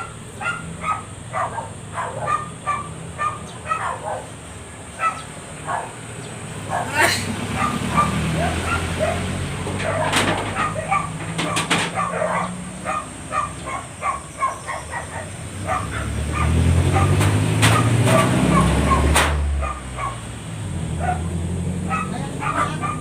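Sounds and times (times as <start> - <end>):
dogs yipping and whimpering: 0.0 - 4.4, 5.0 - 6.0, 6.6 - 20.3, 21.0 - 23.0
sharp knocks: 9.7 - 12.1, 17.1 - 18.4.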